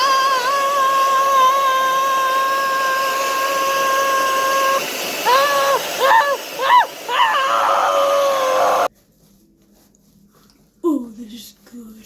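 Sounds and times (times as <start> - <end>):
hair dryer running: 0.0 - 8.9.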